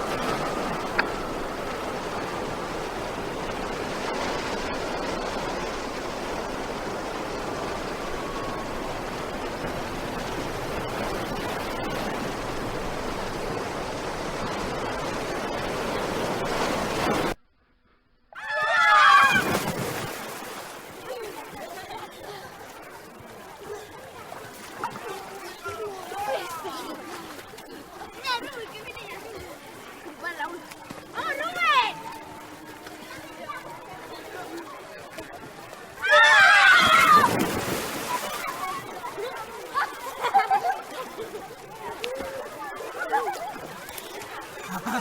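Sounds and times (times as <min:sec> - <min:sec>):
strong wind and water rushing: 0:00.0 - 0:17.4, 0:19.1 - 0:45.0.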